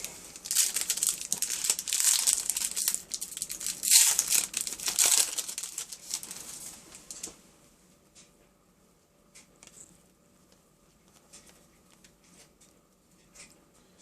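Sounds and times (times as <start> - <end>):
foil pack tearing and crinkling: 0.4 - 6.6.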